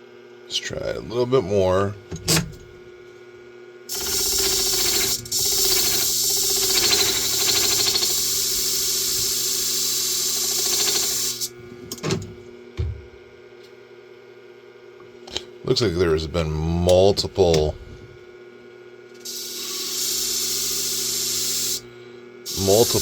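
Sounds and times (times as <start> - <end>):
blade grinding on sharpening disc: 3.9 - 8.8, 10.2 - 11.4
machine motor humming: 3.9 - 13.1, 22.5 - 23.0.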